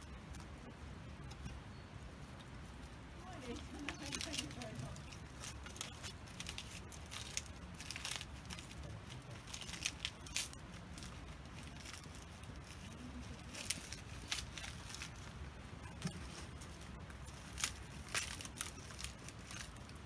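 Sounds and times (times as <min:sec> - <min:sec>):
campfire crackling: 0:00.0 - 0:20.0.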